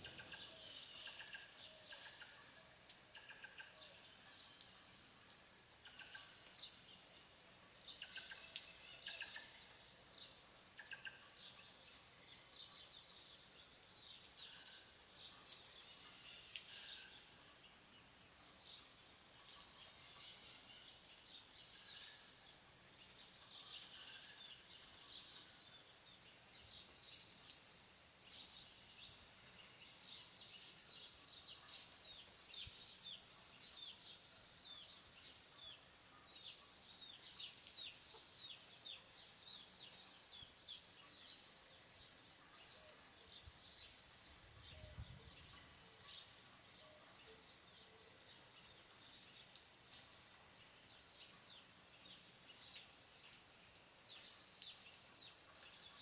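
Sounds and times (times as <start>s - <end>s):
light rain hiss: 0.0s - 56.0s
small birds chirping: 0.0s - 56.0s.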